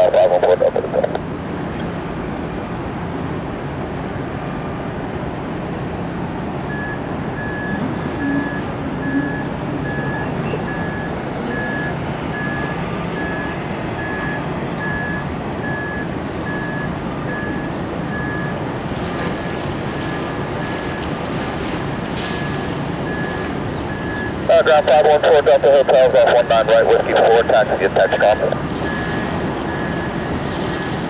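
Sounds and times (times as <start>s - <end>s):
vehicle engine rumble: 0.0s - 31.0s
reversing alarm beeping: 6.6s - 31.0s.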